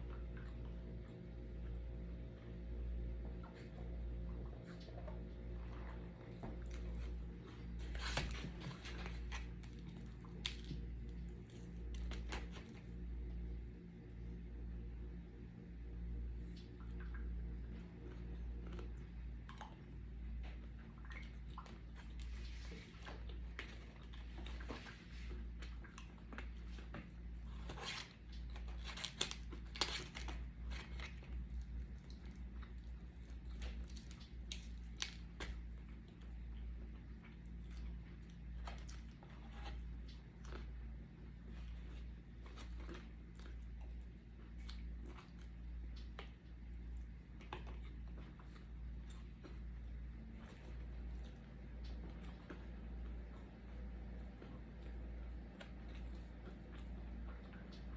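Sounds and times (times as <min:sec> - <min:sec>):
steady low hum: 0:00.0 - 0:57.9
person chewing food: 0:16.8 - 0:57.9.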